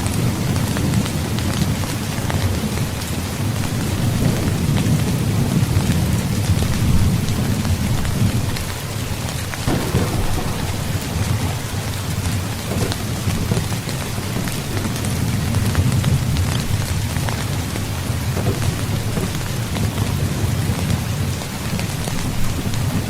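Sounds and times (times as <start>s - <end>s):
heavy rain: 0.0s - 23.0s
rolling thunder: 9.7s - 16.9s.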